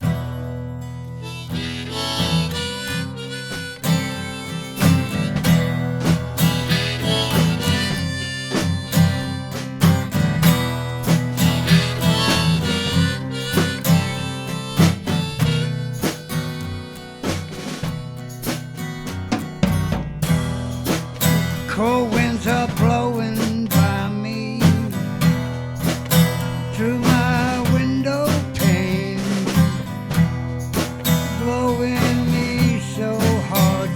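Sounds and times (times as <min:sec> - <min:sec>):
acoustic guitar: 0:00.0 - 0:33.9
harmonica: 0:00.9 - 0:18.9, 0:20.5 - 0:33.9
drum kit: 0:01.6 - 0:33.9.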